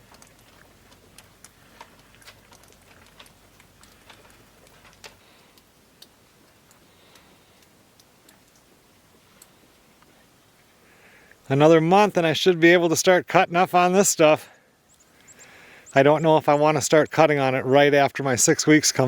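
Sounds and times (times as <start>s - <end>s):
faint small clicks and ticks: 0.0s - 10.2s, 14.9s - 15.5s
low background hiss: 0.0s - 19.0s.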